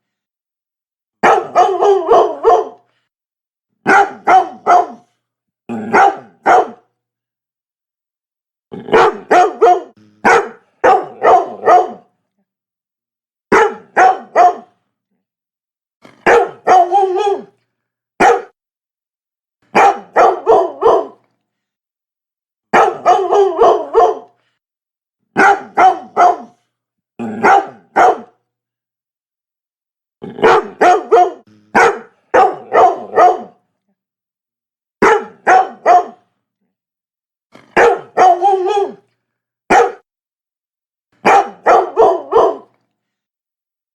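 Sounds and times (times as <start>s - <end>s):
dog barking: 1.2s - 2.9s, 3.8s - 5.1s, 5.7s - 6.9s, 8.8s - 12.1s, 13.5s - 14.8s, 16.2s - 17.5s, 18.2s - 18.6s, 19.7s - 21.2s, 22.7s - 24.4s, 25.4s - 26.6s, 27.3s - 28.4s, 30.4s - 33.6s, 35.0s - 36.3s, 37.6s - 39.0s, 39.7s - 40.1s, 41.2s - 42.7s.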